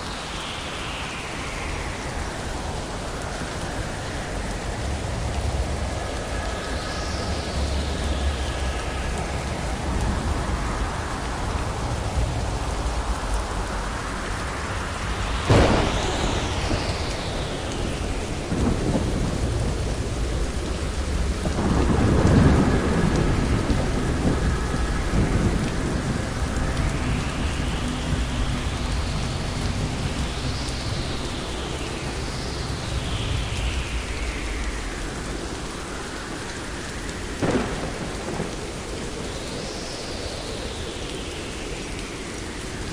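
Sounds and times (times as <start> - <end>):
steady rain: 0.0 - 42.9
rolling rumble of thunder: 0.2 - 42.9
sharp crack of thunder: 15.4 - 31.1, 37.3 - 39.8.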